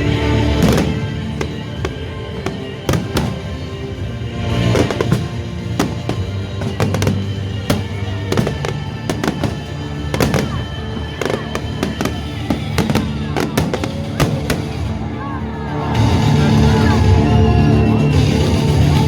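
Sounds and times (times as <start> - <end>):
steady music: 0.0 - 19.0
fireworks bangs: 0.3 - 15.1.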